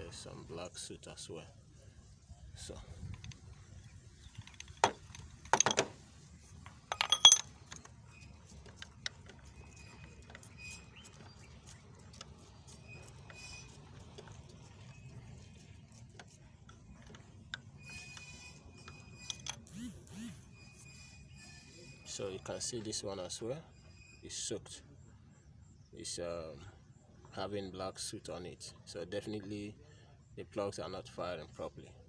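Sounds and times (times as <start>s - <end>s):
metal hand tools clanking: 6.9s - 7.8s.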